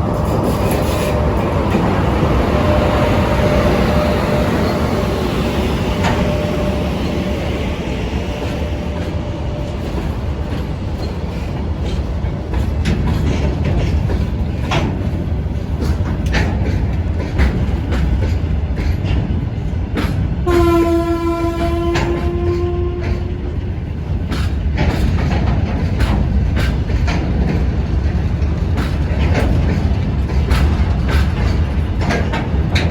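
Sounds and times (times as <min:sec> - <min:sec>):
freight train rumbling past: 0:00.0 - 0:32.9
wheels clicking over rail joints: 0:08.4 - 0:32.9
train horn: 0:20.4 - 0:23.6.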